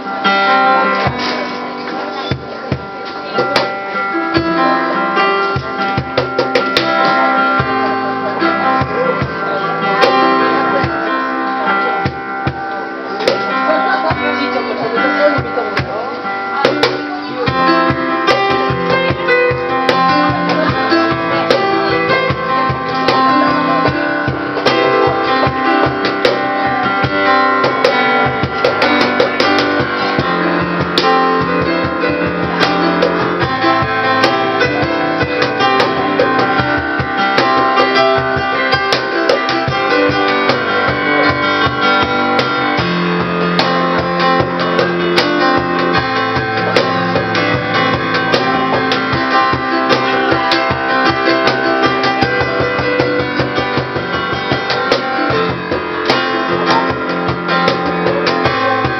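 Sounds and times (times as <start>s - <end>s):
cajon beat: 0.0s - 58.9s
strummed chords: 0.0s - 58.9s.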